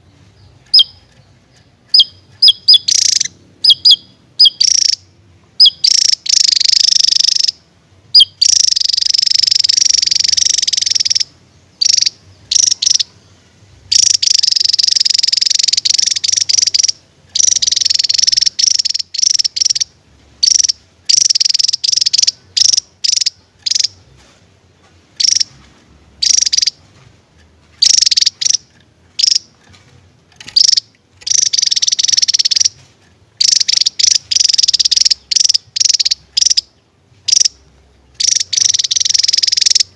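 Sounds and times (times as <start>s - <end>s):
bird buzzing trills: 0.0s - 24.2s, 25.2s - 25.6s, 26.2s - 26.8s, 27.8s - 29.6s, 30.4s - 32.8s, 33.4s - 39.9s.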